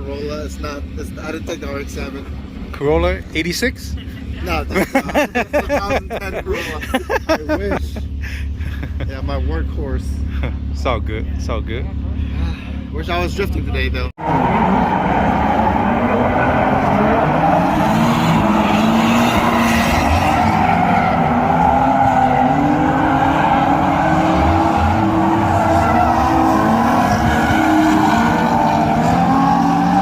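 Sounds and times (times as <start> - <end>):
car engines at high revs: 6.2 - 30.0
tires squealing: 14.2 - 30.0.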